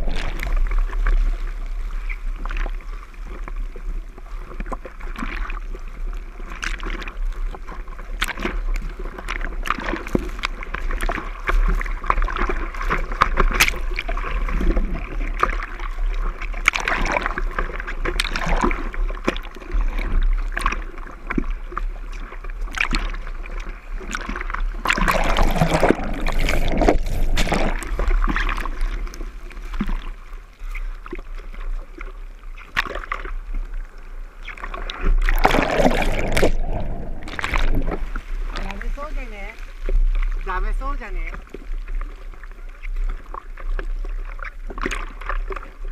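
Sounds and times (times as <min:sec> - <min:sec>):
hands paddling through water: 0:22.7 - 0:30.2, 0:34.4 - 0:41.6
low rumble: 0:33.4 - 0:41.9.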